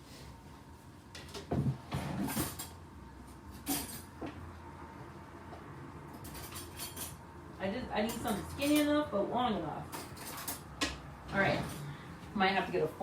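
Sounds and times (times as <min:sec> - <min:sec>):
kitchen utensils clattering: 0:01.9 - 0:02.8, 0:03.6 - 0:04.1, 0:06.2 - 0:07.2, 0:08.0 - 0:09.0, 0:09.9 - 0:11.9.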